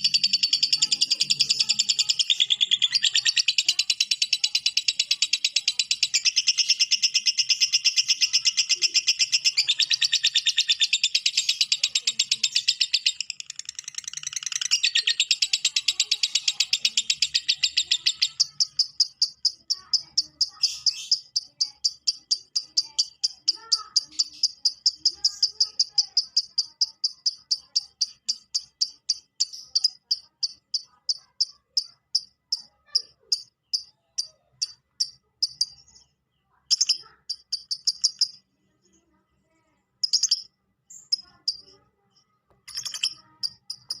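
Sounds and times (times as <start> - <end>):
lovebird chattering: 0.0 - 36.0, 36.6 - 39.1, 40.0 - 44.0.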